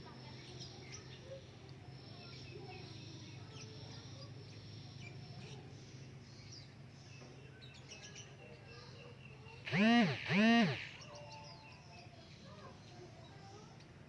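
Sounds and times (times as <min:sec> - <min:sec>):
steady low hum: 0:09.7 - 0:11.0.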